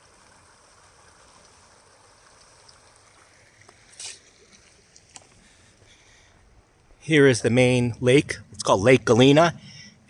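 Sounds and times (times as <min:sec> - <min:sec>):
stream water flowing: 0:00.0 - 0:07.0.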